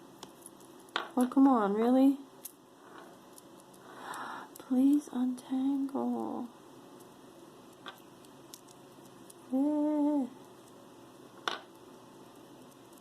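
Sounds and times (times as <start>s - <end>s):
woman humming: 9.5s - 10.4s.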